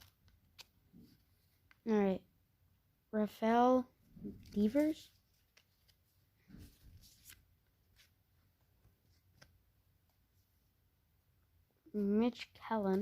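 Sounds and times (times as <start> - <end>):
trading cards flicking and sliding: 0.0 - 1.8, 4.4 - 8.1.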